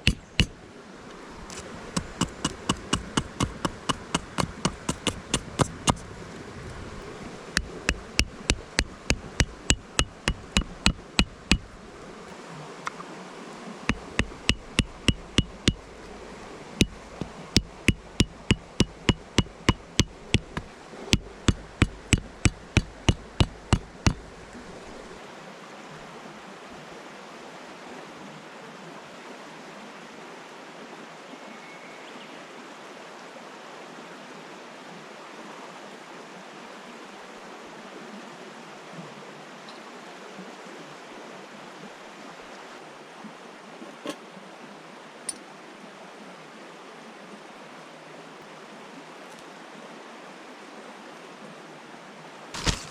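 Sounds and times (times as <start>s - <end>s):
sharp evenly spaced knocks: 0.0s - 0.6s, 1.5s - 6.1s, 6.9s - 11.8s, 13.9s - 16.2s, 16.8s - 24.5s
river water rushing: 0.0s - 31.3s.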